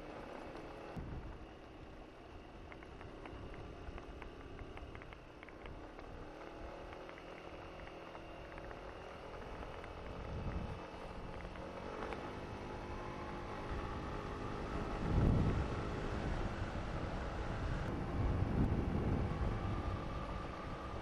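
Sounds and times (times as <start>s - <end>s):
scooter engine cruising: 0.0s - 21.0s
wind noise: 10.1s - 10.8s, 13.7s - 21.0s.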